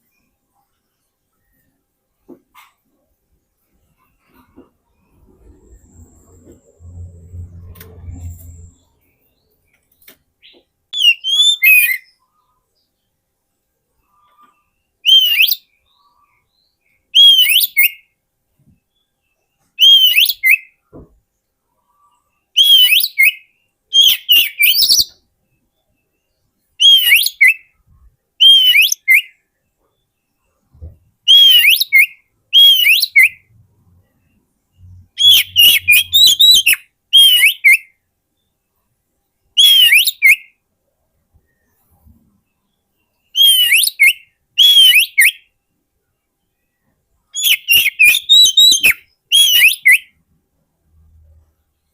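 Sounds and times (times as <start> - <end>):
bird singing whistled phrases: 11.0 - 12.2, 15.0 - 15.7, 17.2 - 18.0, 19.8 - 20.8, 22.6 - 25.2, 26.8 - 27.8, 28.4 - 29.4, 31.3 - 33.5, 35.1 - 37.9, 39.6 - 40.6, 43.3 - 45.5, 47.4 - 50.1.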